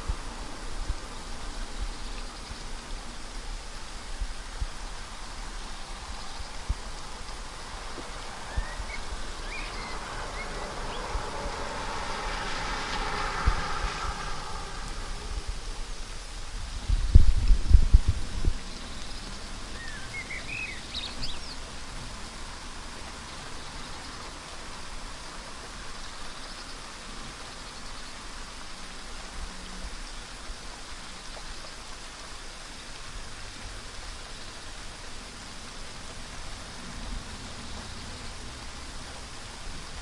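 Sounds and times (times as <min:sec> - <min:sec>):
rain falling on leaves: 0:00.0 - 0:40.0
bird chirping: 0:08.5 - 0:11.1, 0:18.7 - 0:21.7.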